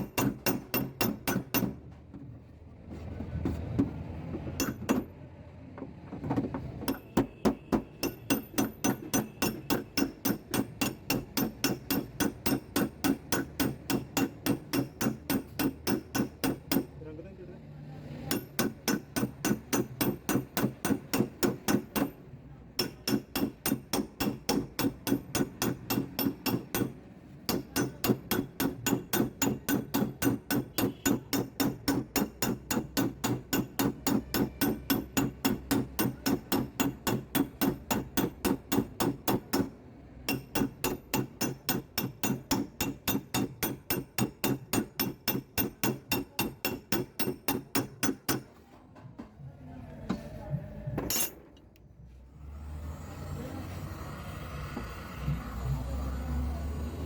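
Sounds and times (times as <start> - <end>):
hammer tapping sheet metal: 0.0 - 1.8, 4.6 - 5.1, 6.9 - 17.0, 18.2 - 48.8.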